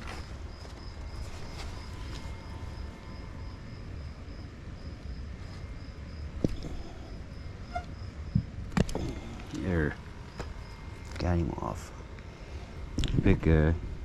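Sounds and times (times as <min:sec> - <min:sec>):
steady low rumble: 0:00.0 - 0:14.0
insect trilling: 0:00.1 - 0:08.4.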